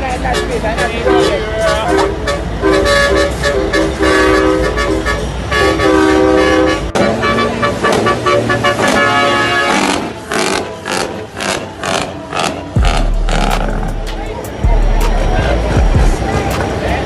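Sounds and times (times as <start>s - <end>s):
truck horns blowing: 0.1s - 14.1s
low tone with rhythmic beats: 12.8s - 17.0s.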